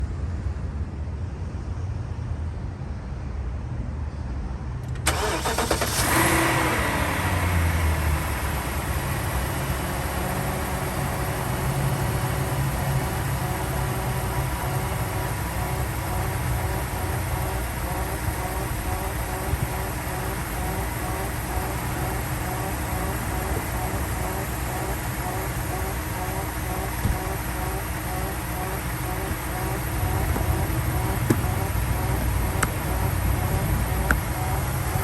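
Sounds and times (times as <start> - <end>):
car engine revving and idling: 4.8 - 35.0
starter cranking: 4.9 - 6.5, 9.6 - 35.0
low background rumble: 4.9 - 35.0.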